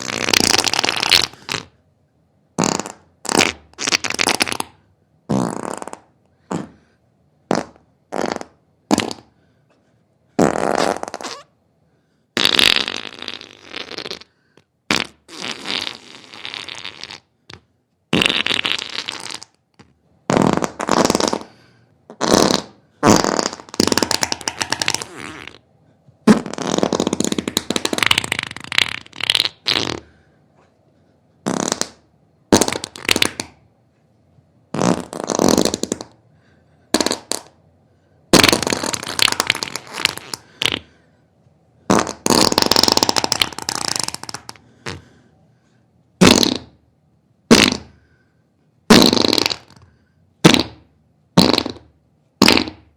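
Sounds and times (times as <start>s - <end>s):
wet sputtering farts: 0.0s - 1.7s, 2.6s - 6.8s, 7.5s - 9.3s, 10.4s - 11.5s, 12.4s - 14.3s, 14.9s - 25.6s, 26.2s - 30.2s, 31.4s - 33.6s, 34.7s - 36.2s, 36.9s - 37.6s, 38.3s - 41.0s, 41.9s - 45.1s, 46.2s - 46.8s, 47.5s - 48.0s, 48.9s - 49.8s, 50.4s - 52.9s.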